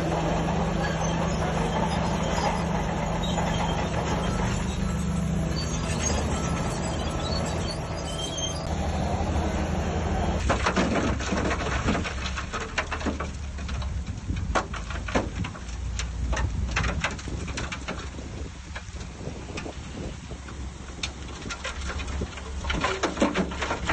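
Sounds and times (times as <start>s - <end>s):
heavy diesel machinery rumbling: 0.0s - 23.9s
sharp knocks and clatters: 10.4s - 18.2s.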